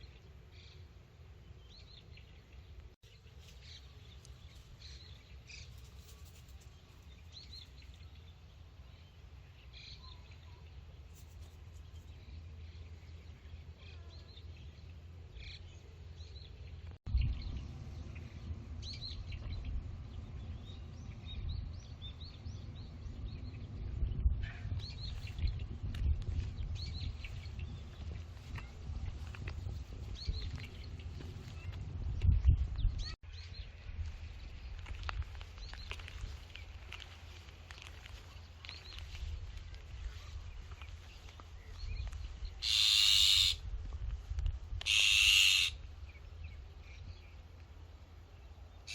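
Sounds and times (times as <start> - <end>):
small birds chirping: 1.6 - 43.7
low rumble on microphone: 11.8 - 42.6.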